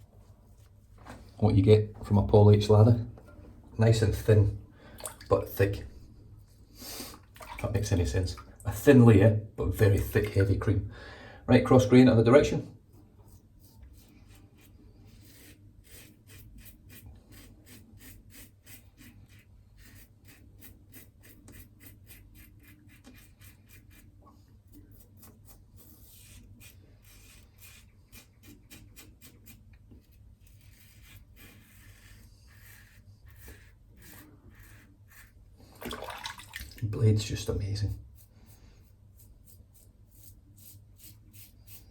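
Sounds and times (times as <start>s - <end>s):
razor scraping stubble: 13.3s - 35.4s, 38.0s - 41.9s.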